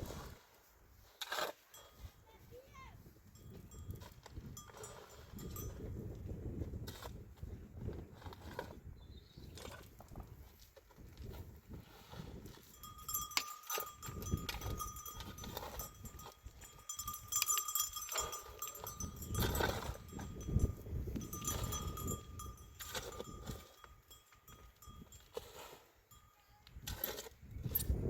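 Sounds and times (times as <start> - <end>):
livestock bells clanking: 3.2 - 6.0, 12.6 - 25.4, 26.1 - 27.2
steady ringing tone: 12.6 - 25.4
clinks and knocks: 12.7 - 25.3.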